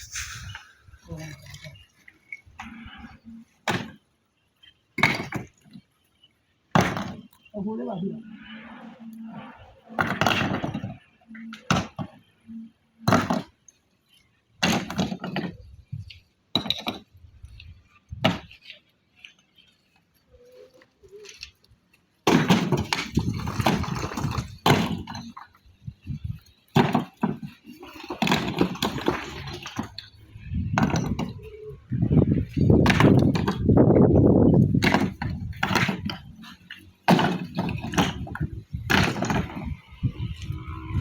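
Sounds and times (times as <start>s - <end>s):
knocks of hard objects: 5.0s - 5.8s, 6.7s - 7.3s, 13.0s - 13.6s, 14.6s - 15.6s, 16.5s - 17.1s, 18.2s - 18.6s, 22.2s - 25.4s, 26.7s - 30.0s, 30.7s - 31.5s, 32.7s - 33.7s, 34.7s - 39.8s
clattering and scraping: 22.2s - 31.5s, 34.4s - 41.0s.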